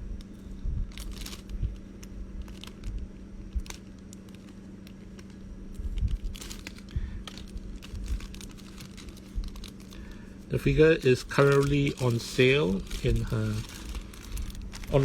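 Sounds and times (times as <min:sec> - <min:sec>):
low steady hum: 0:00.0 - 0:15.0
plastic packaging crinkling: 0:00.3 - 0:15.0.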